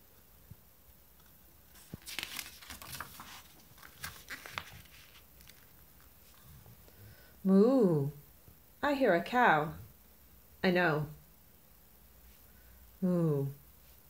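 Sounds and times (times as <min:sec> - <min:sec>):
faint crinkling handling noises: 0:00.5 - 0:07.3.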